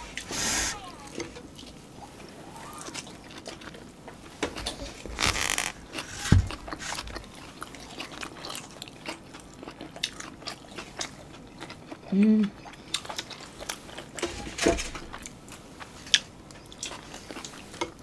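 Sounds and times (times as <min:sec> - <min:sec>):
wet chewing with smacks: 0:00.9 - 0:14.4, 0:15.0 - 0:18.0
dull thump: 0:06.2 - 0:06.6.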